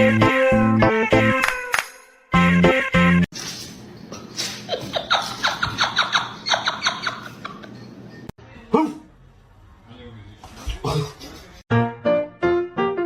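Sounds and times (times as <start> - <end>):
person laughing: 4.3 - 7.9.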